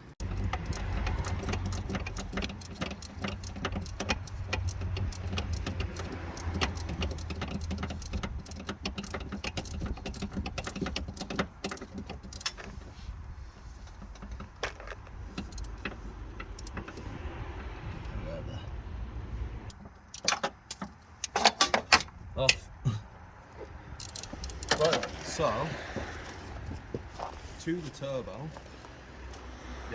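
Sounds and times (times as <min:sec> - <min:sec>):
metal tools clinking and rattling: 0:00.2 - 0:17.2, 0:19.7 - 0:22.1, 0:24.0 - 0:25.6.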